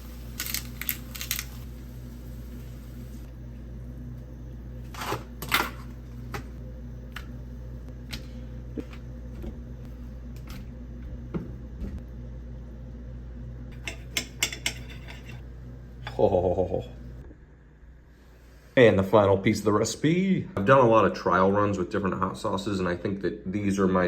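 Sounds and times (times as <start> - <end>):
steady low hum: 0.0 - 24.0
kitchen utensils and dishes clicking: 13.8 - 15.4.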